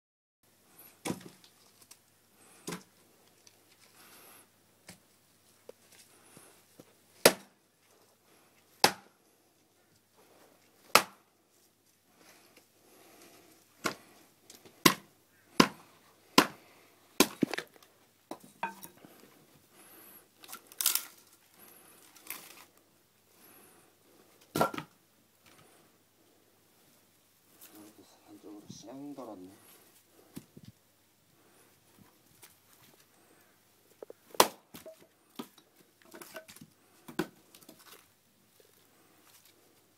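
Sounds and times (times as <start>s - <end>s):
axe chopping firewood: 1.0s - 1.4s, 2.6s - 2.9s, 7.2s - 7.5s, 8.8s - 9.1s, 10.8s - 11.2s, 13.8s - 14.1s, 14.8s - 16.6s, 17.2s - 17.7s, 24.5s - 24.9s, 34.3s - 37.8s
wood cracking and splintering: 20.4s - 21.3s.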